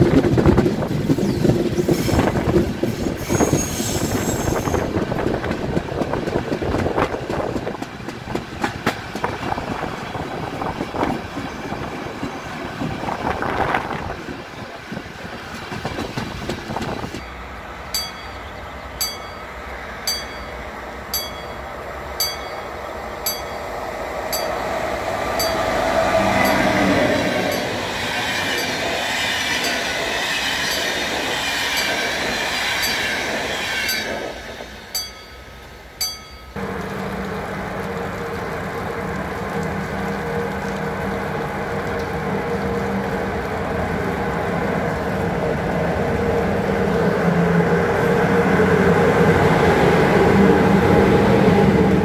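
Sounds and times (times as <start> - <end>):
locomotive humming: 0.0 - 52.0
train passing: 0.0 - 52.0
train wheels clattering: 0.1 - 13.7, 14.9 - 36.6.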